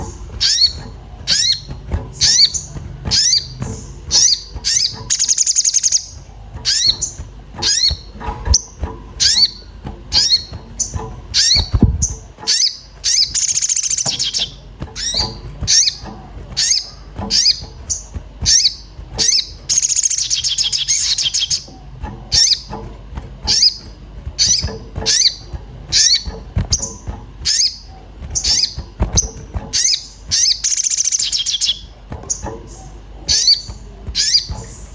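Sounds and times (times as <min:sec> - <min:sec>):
bird rapid chattering: 0:00.0 - 0:34.9
bird sharp high chirps: 0:00.4 - 0:09.6, 0:10.2 - 0:16.0, 0:16.6 - 0:21.7, 0:27.5 - 0:32.5.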